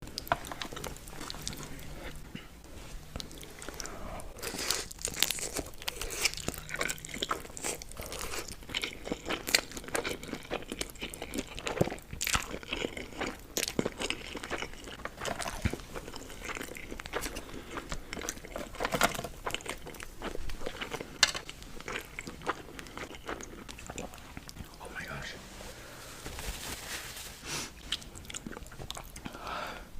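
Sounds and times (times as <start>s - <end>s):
person chewing and biting noodles: 3.0s - 24.7s, 27.7s - 29.4s.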